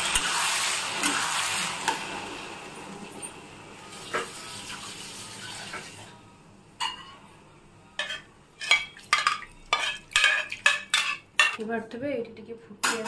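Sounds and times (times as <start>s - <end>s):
food sizzling in a pan: 0.0s - 6.2s
utensils clinking against pan: 8.0s - 11.6s.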